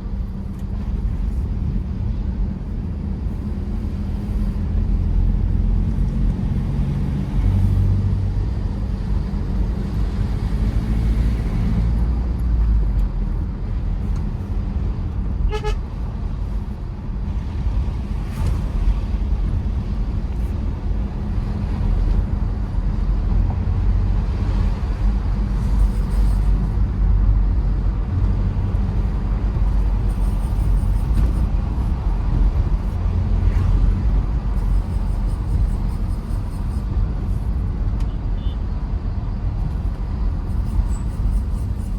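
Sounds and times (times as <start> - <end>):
diesel engine and tyres rumbling: 0.0 - 41.9
vehicle horn toot: 15.5 - 15.8, 38.1 - 38.6.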